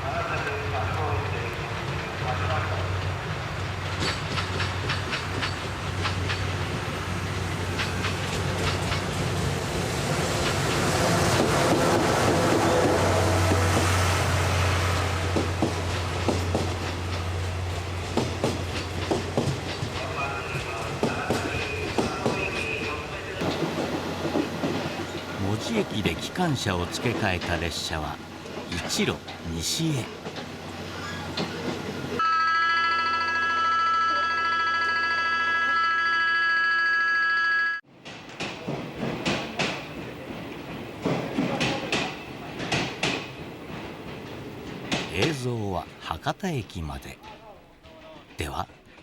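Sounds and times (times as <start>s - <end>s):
train low rumble: 0.0s - 32.2s
wheels clacking over rail joints: 0.3s - 14.1s, 14.9s - 29.5s, 37.9s - 45.4s
railway warning signal tone: 32.2s - 37.8s.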